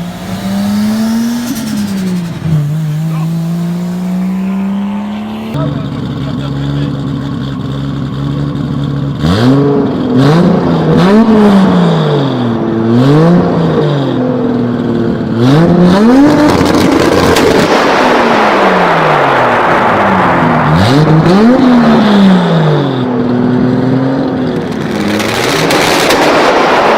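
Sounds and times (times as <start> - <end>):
sharp exhaust cracks: 0.0 - 5.6
car engine idling and revving: 0.0 - 26.9.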